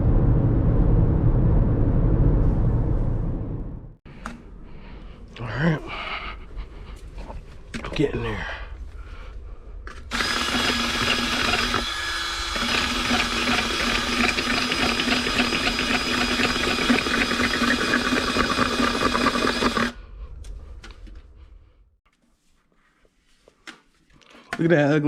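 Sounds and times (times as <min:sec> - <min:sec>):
power drill boring into pipe: 0:10.1 - 0:20.0.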